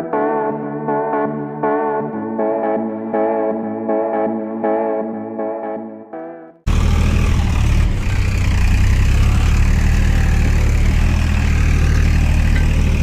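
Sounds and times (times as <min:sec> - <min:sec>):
music: 0:00.0 - 0:06.7
heavy engine running loudly: 0:06.7 - 0:13.0.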